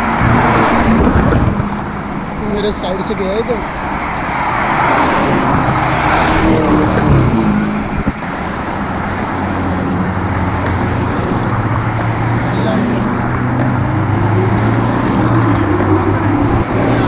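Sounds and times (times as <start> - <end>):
car engine running: 0.0 - 17.0
tyre and road noise: 0.0 - 17.0.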